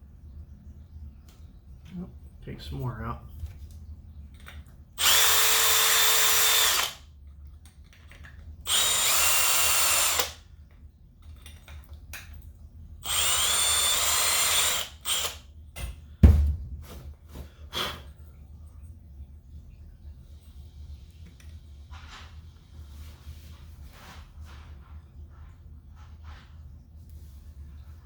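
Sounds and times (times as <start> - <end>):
power drill boring metal: 5.0 - 7.0, 8.7 - 10.4, 13.0 - 15.4
thump: 16.2 - 17.1.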